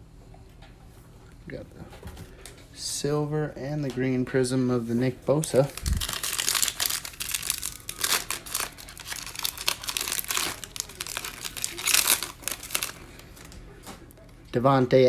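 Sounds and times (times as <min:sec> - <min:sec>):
cards being handled: 0:05.5 - 0:14.0
foil pack tearing and crinkling: 0:05.6 - 0:13.6.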